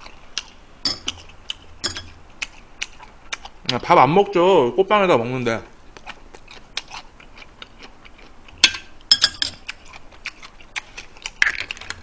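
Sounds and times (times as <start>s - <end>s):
person chewing crunchy food: 0.0s - 3.9s, 5.9s - 12.0s.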